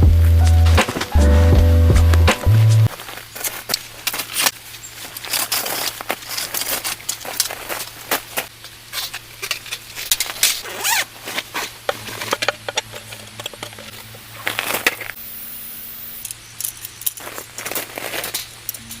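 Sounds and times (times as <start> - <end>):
objects clicking knocking and scraping: 11.4 - 15.2.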